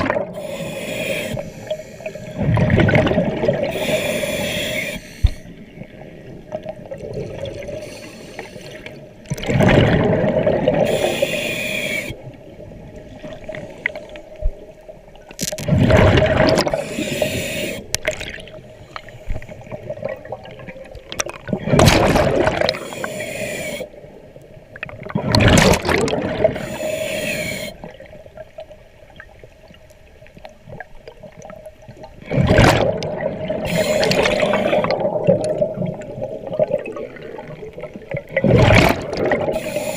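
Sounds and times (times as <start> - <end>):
regulator inhalations: 0.4 - 2.4, 3.7 - 5.5, 7.8 - 8.9, 10.9 - 12.2, 16.8 - 17.9, 22.8 - 23.9, 26.6 - 27.9, 33.7 - 34.9, 39.6 - 39.9
diver exhaling bubbles: 2.4 - 4.8, 9.3 - 12.1, 15.6 - 18.5, 21.4 - 23.0, 25.0 - 27.7, 32.2 - 39.9.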